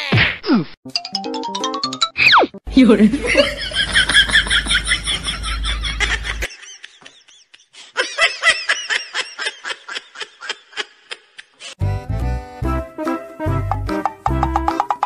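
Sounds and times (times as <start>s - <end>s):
high-pitched giggling laughter: 3.2s - 11.6s.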